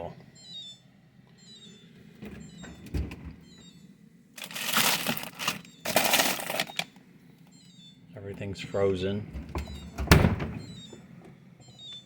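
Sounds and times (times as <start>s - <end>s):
frozen food packages crinkling: 4.4s - 7.0s.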